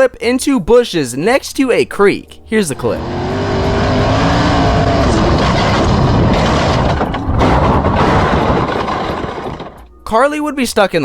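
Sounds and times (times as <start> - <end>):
rough noise of race cars: 2.4 - 9.9
race car engine running hard: 2.7 - 9.8.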